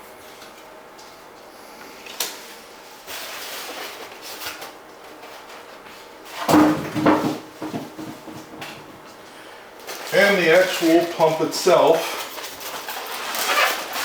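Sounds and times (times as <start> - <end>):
sliding rustle of packaging: 2.9 - 6.4, 9.8 - 14.0
knocks and scrapes: 6.4 - 9.1.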